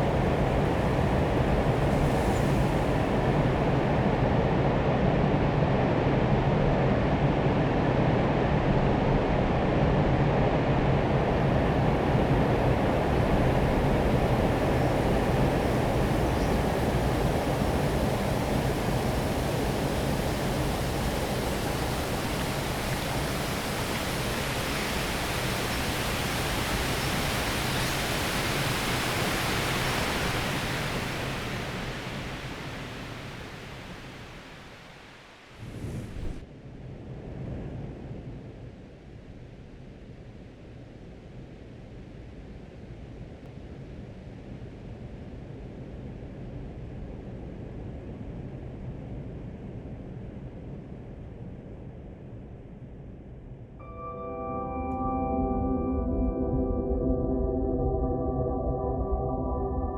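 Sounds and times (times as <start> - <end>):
waterfall rushing: 0.0 - 4.3, 11.1 - 34.9.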